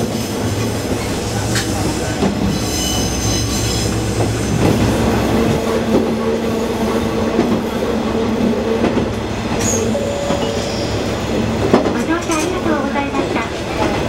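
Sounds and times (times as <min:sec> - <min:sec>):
diesel railcar engine hum: 0:00.0 - 0:14.0
high wheel squeal: 0:02.4 - 0:04.0, 0:09.6 - 0:11.3.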